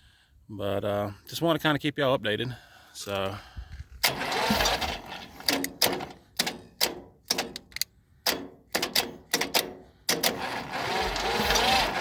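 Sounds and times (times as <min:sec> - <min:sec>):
tractor starter clicking: 0:04.0 - 0:12.0.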